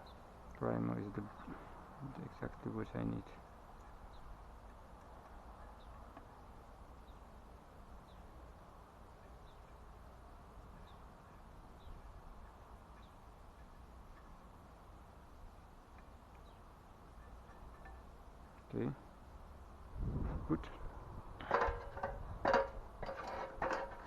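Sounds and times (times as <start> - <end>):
bird chirps: 0.0 - 0.3, 5.5 - 7.3, 9.2 - 9.9, 10.7 - 14.4, 16.4 - 17.8.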